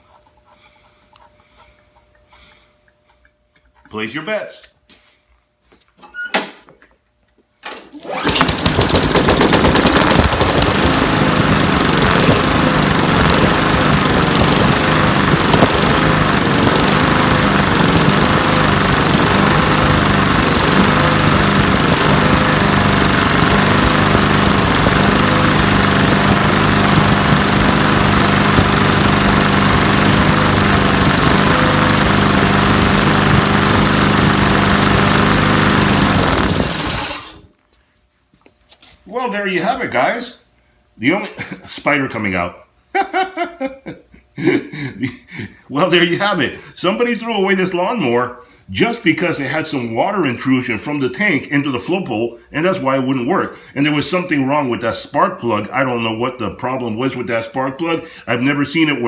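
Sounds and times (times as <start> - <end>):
lawn mower engine pull-started: 7.6 - 37.6
lawn mower engine running: 7.9 - 37.5.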